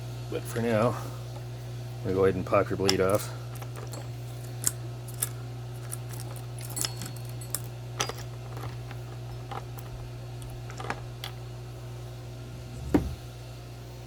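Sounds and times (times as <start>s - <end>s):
steady low hum: 0.0s - 14.0s
metallic clicks and clinks: 2.9s - 11.4s.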